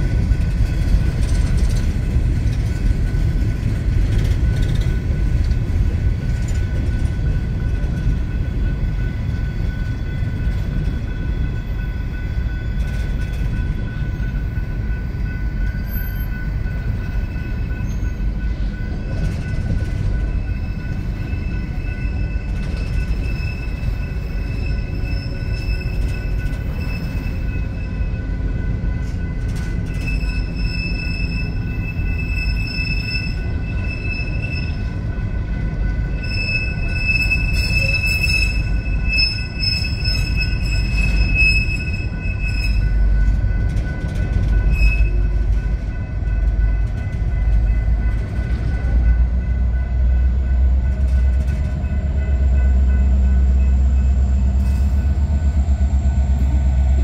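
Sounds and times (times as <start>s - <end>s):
train wheels rumbling on rail: 0.0s - 57.0s
high-pitched wheel squeal: 22.8s - 28.0s, 29.9s - 34.9s, 36.1s - 43.0s, 44.6s - 45.3s.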